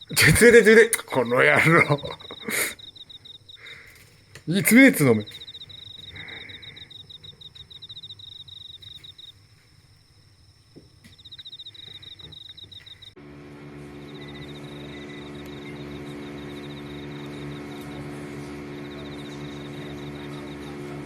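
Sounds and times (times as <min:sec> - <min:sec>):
insect trilling: 0:00.0 - 0:13.2, 0:14.0 - 0:18.1
low steady hum: 0:12.5 - 0:21.0.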